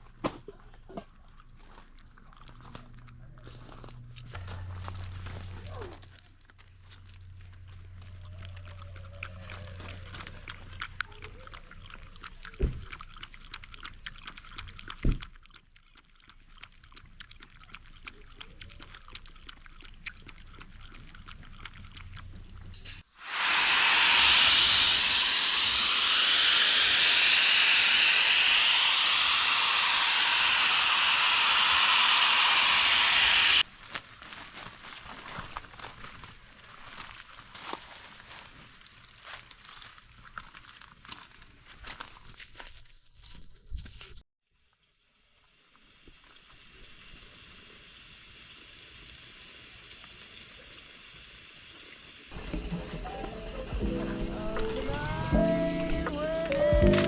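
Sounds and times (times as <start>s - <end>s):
hiss of rushing air: 23.1s - 33.6s, 45.7s - 57.0s
music: 52.6s - 57.0s.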